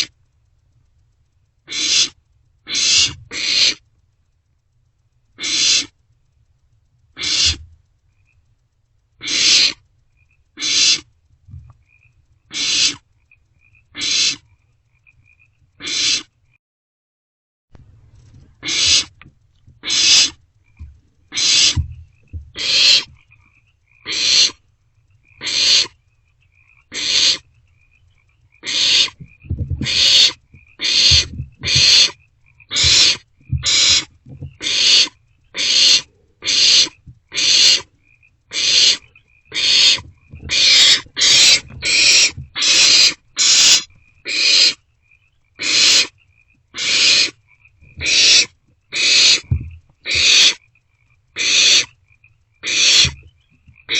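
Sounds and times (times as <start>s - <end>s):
owlets hissing begging calls: 1.7s - 3.8s, 5.4s - 6.0s, 7.2s - 7.6s, 9.2s - 9.8s, 10.6s - 11.1s, 12.5s - 13.0s, 13.9s - 14.4s, 15.8s - 16.3s, 18.6s - 19.2s, 19.8s - 20.4s, 21.3s - 23.2s, 24.0s - 24.6s, 25.2s - 26.0s, 26.8s - 37.9s, 38.5s - 44.8s, 45.6s - 46.2s, 46.8s - 47.4s, 48.0s - 50.6s, 51.4s - 52.0s, 52.6s - 53.2s.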